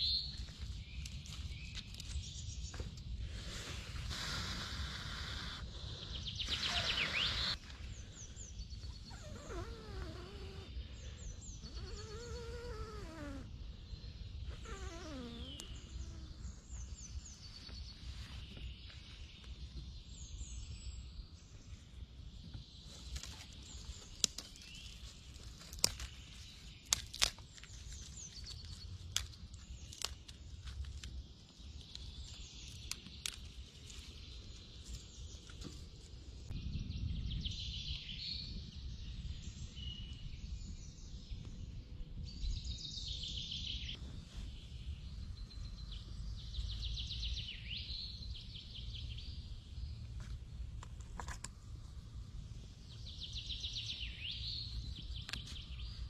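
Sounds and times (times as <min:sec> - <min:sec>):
birds singing and chirping: 0:00.0 - 0:30.5, 0:52.6 - 0:56.0.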